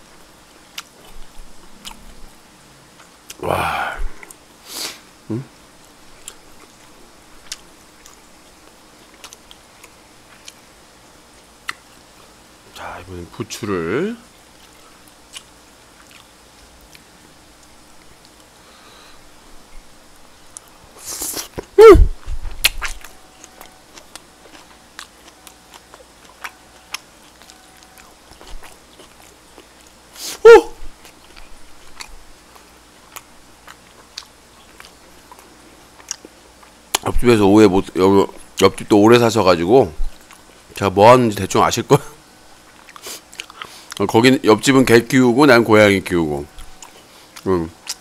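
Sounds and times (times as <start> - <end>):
chewing clicks and smacks: 0.7 - 2.1, 5.8 - 10.6, 14.6 - 18.5, 22.6 - 30.0, 31.0 - 37.1, 42.7 - 44.1, 46.6 - 48.0.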